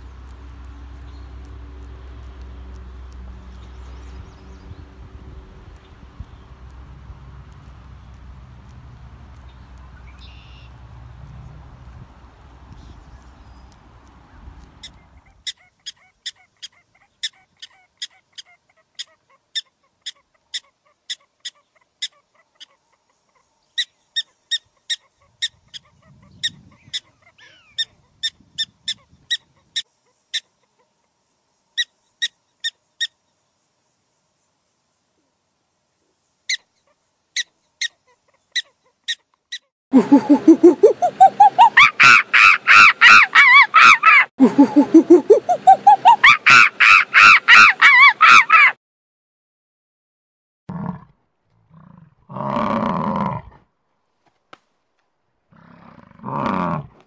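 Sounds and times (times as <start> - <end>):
bird short sharp high calls: 10.0 - 10.8, 40.0 - 48.7
louder lower bird call: 40.0 - 48.7.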